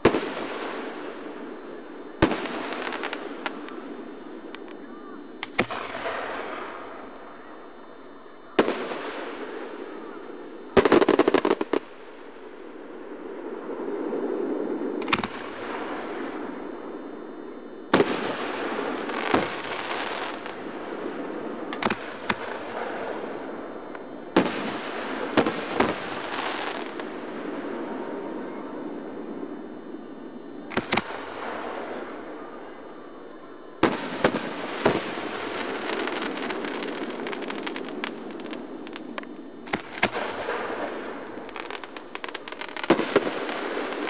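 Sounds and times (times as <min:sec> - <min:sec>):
rapid firework cracks: 0:02.2 - 0:04.8, 0:05.4 - 0:07.3, 0:10.7 - 0:11.9, 0:15.0 - 0:15.8, 0:17.9 - 0:20.6, 0:21.7 - 0:27.1, 0:30.7 - 0:31.6, 0:33.8 - 0:44.0.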